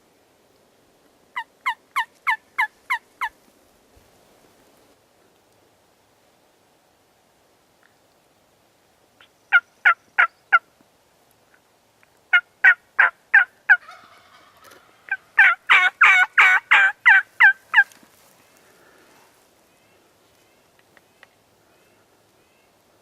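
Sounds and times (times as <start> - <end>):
raspy turkey call: 1.4 - 3.3, 12.3 - 17.9
wild turkey yelping: 9.5 - 10.6, 12.3 - 18.0.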